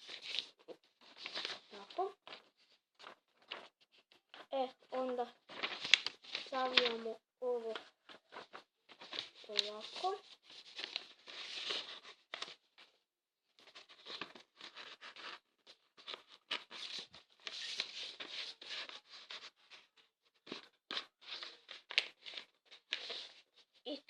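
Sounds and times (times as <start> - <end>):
paper folding and rustling: 0.0 - 13.0, 13.6 - 24.0.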